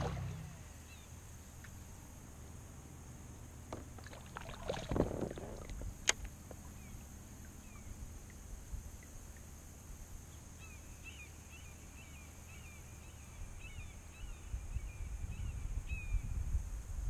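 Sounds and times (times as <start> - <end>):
small bird chirping: 0.2 - 1.8.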